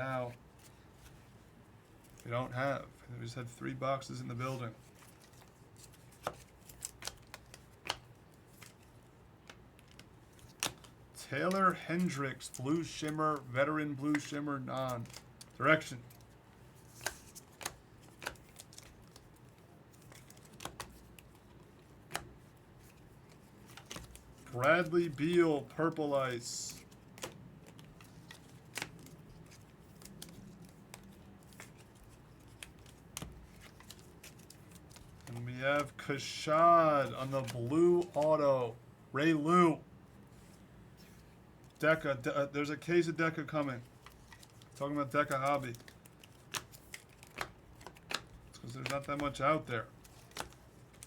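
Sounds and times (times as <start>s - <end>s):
faint room hiss: 0.0s - 51.0s
cards clicking and snapping: 4.9s - 25.3s, 26.7s - 36.0s, 43.9s - 49.4s, 50.0s - 51.0s.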